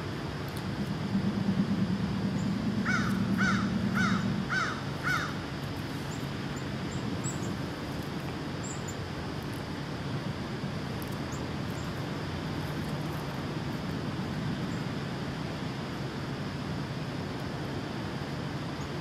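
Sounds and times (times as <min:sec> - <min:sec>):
steady low hum: 0:00.0 - 0:19.0
bird calling: 0:02.8 - 0:05.4.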